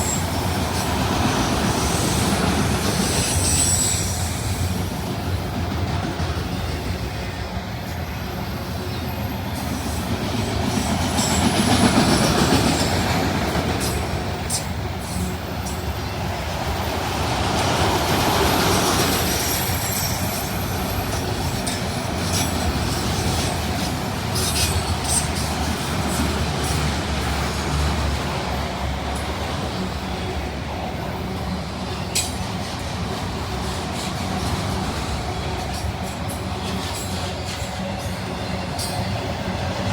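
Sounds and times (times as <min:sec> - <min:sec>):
clicks and squeaks from train cars: 0:00.0 - 0:39.9
train wheels rumbling on rail: 0:00.0 - 0:39.9.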